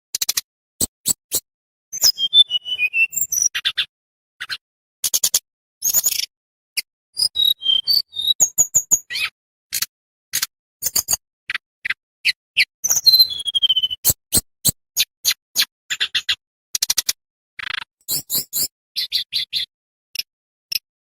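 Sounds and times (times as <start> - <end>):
songbird chirping and whistling: 0.8 - 3.9, 5.8 - 9.3, 11.8 - 16.4, 17.6 - 19.7.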